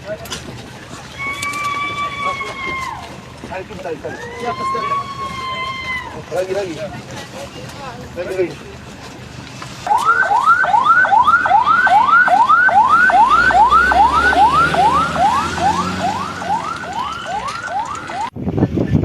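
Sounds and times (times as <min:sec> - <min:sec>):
electronic siren yelping: 0:09.9 - 0:18.3.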